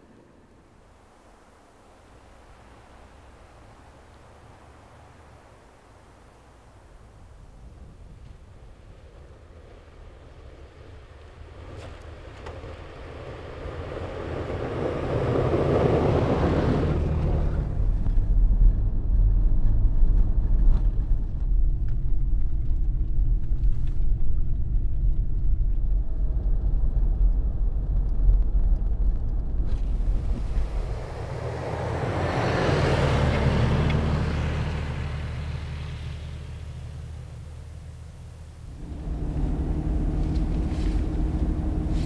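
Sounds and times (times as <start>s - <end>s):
engine and tyre rumble: 0.0s - 42.0s
rushing noise: 29.6s - 42.0s.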